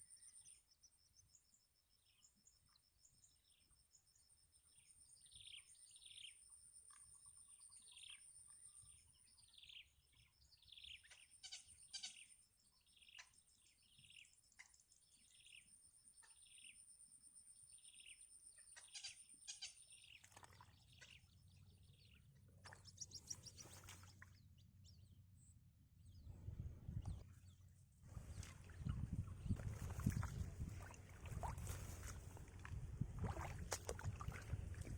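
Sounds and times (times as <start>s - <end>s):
bird chirping: 17.7s - 30.4s
low rumbling noise: 26.0s - 31.6s.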